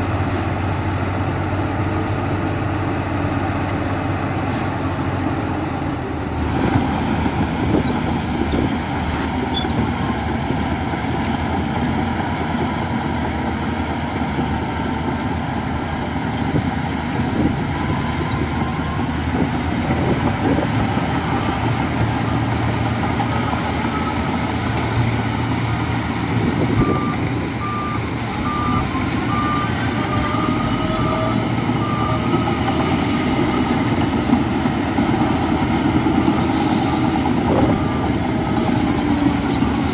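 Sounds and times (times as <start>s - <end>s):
heavy diesel machinery running: 0.0s - 39.9s
reversing alarm beeping: 26.7s - 39.9s.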